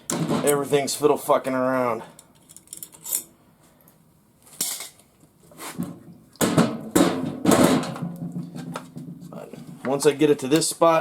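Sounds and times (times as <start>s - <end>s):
metal parts clinking and clattering: 2.4s - 3.3s
sharp knocks: 6.4s - 9.9s.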